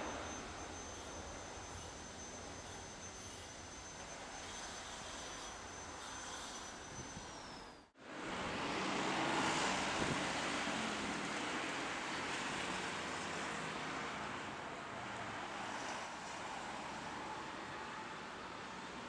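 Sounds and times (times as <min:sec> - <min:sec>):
jet engine whistle: 0:00.0 - 0:07.9.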